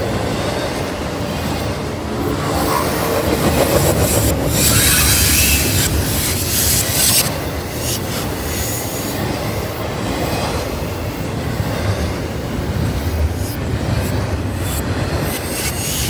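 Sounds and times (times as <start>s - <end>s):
rumble of wheels on rail: 0.0s - 16.0s
high-pitched wheel noise: 1.2s - 8.9s.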